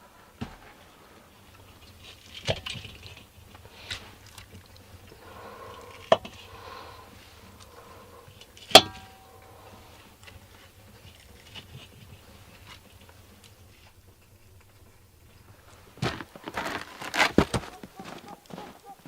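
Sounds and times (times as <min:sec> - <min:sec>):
soft rustle: 0:00.0 - 0:19.0
ringing metallic clank: 0:07.6 - 0:11.4.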